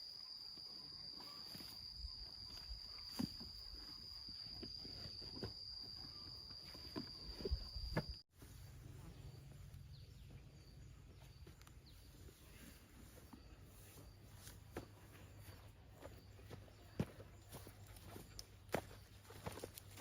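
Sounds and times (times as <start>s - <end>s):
high insect trill: 0.0s - 8.2s.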